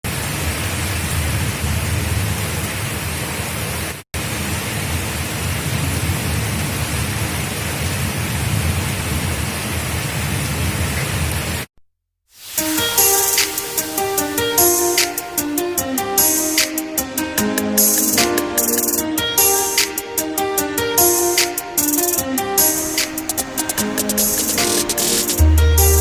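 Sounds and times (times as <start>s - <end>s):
steady rain: 0.0s - 11.7s, 12.4s - 26.0s
music: 12.6s - 26.0s.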